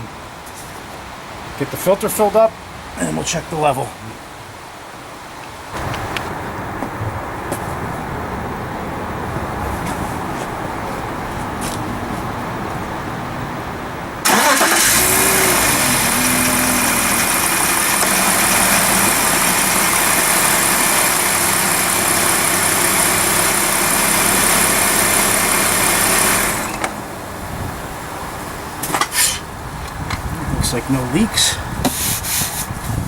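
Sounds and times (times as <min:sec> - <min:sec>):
car engine starting and idling: 0:14.2 - 0:31.5.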